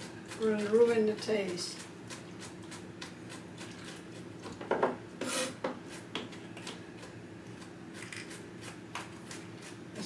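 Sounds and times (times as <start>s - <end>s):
kitchen utensils scraping and rattling: 5.2s - 6.0s.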